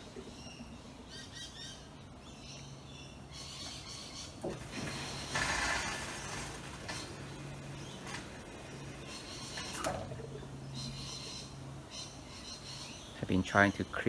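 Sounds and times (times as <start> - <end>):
dishwasher hum: 3.7 - 13.2
water rushing hiss: 4.5 - 9.5.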